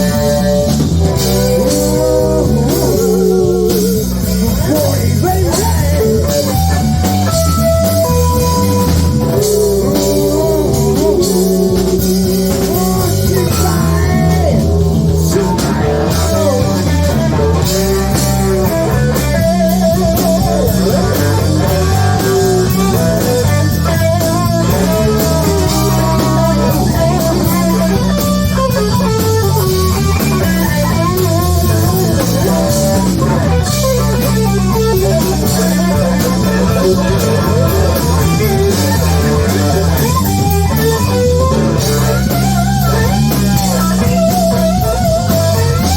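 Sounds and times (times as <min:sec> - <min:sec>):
bass guitar: 0:00.0 - 0:45.9
drum kit: 0:00.0 - 0:45.9
electric guitar melody: 0:00.0 - 0:45.9.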